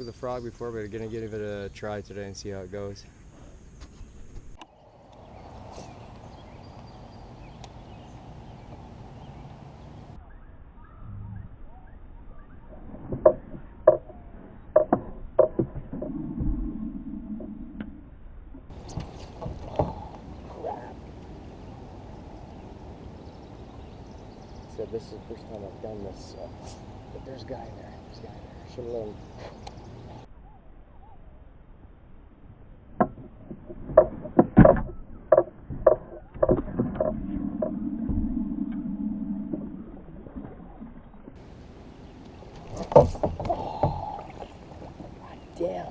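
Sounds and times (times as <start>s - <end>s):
faint bird chirps: 0.0s - 12.9s, 18.8s - 31.5s
gear knocking against kayak: 13.0s - 16.5s, 33.0s - 38.3s, 42.6s - 44.3s
low whirring: 33.3s - 45.9s
sharp knocks on a kayak: 42.8s - 44.1s.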